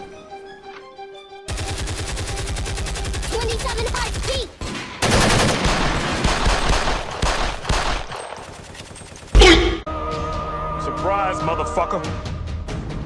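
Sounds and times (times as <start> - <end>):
automatic gunfire: 1.5 - 4.4, 5.0 - 9.4.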